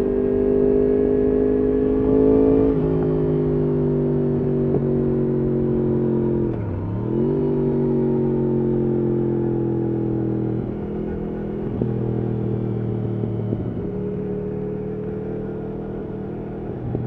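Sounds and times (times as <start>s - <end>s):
motorcycle engine running: 6.7s - 17.0s.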